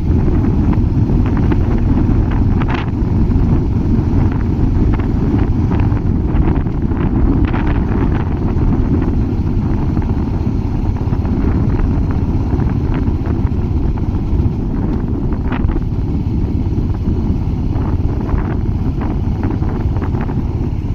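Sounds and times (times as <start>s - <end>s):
motorcycle engine running: 0.0s - 20.9s
wind noise on microphone: 0.0s - 20.9s.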